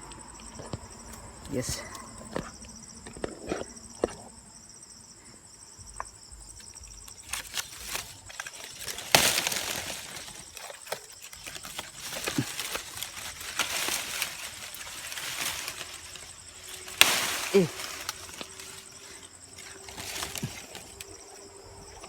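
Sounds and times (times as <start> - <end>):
insects trilling: 0.0 - 22.0
rustling and clicks: 6.6 - 22.0
sharp crack: 7.3 - 18.9.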